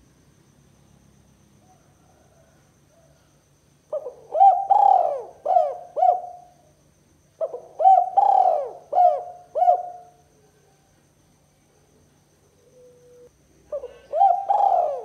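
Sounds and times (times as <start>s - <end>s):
dove cooing: 3.9s - 6.6s, 7.4s - 10.2s, 12.6s - 15.0s.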